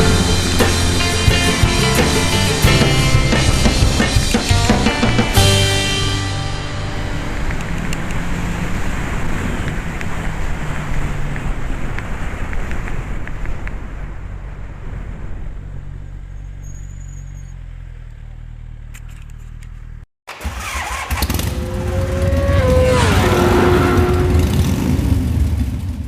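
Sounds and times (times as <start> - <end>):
motorcycle engine running: 0.0 - 11.5, 20.6 - 26.0.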